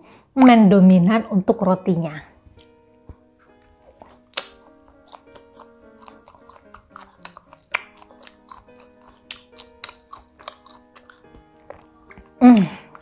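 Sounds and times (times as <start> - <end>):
soft background music: 0.1 - 13.0
person chewing food: 2.5 - 2.8, 3.4 - 13.0.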